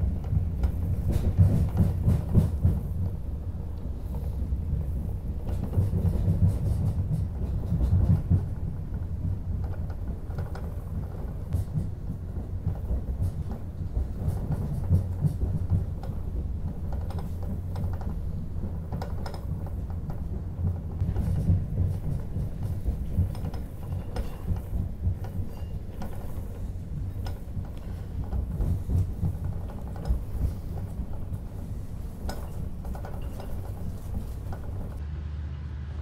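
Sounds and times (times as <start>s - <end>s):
high-speed train rumble: 0.0s - 36.0s
clicks and knocks: 5.4s - 35.0s.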